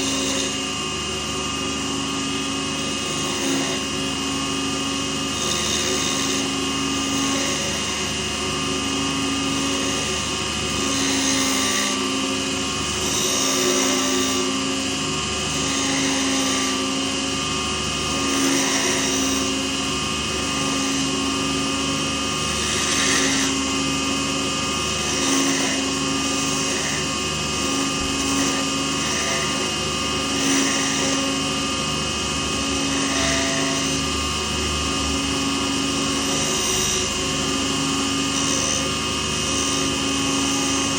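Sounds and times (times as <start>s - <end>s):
lathe motor whine: 0.0s - 40.9s
tool hissing on spinning blank: 0.0s - 40.9s.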